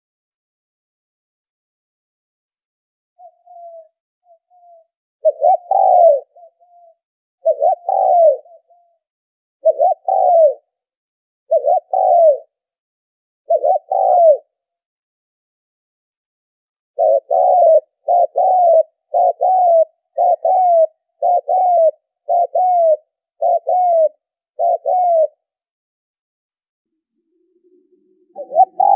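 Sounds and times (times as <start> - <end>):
dove cooing: 3.2 - 10.8, 11.5 - 12.6, 13.5 - 14.6, 17.0 - 25.5, 27.6 - 28.9.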